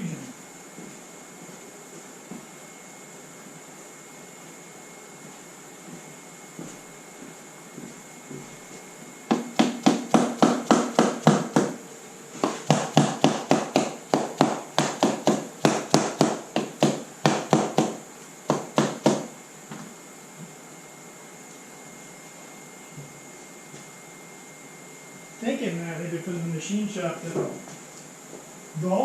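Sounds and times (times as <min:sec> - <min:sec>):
rapid hammer blows on metal: 0:09.3 - 0:11.8, 0:12.4 - 0:19.3.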